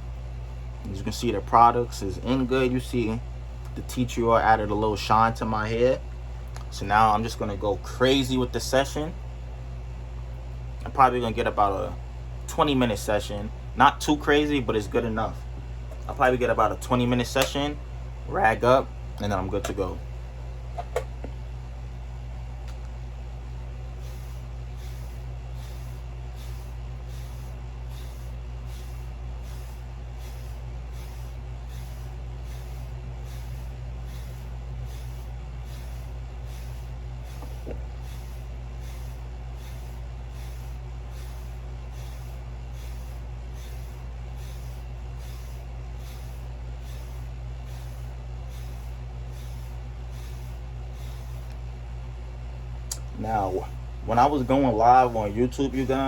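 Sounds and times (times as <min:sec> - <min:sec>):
steady low hum: 0:00.0 - 0:56.0
brush swishing over hair: 0:24.0 - 0:51.6.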